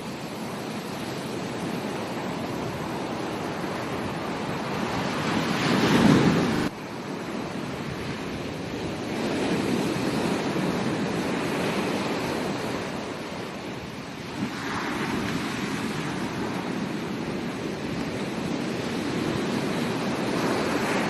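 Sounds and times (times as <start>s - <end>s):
ocean surf breaking on beach: 0.0s - 21.0s.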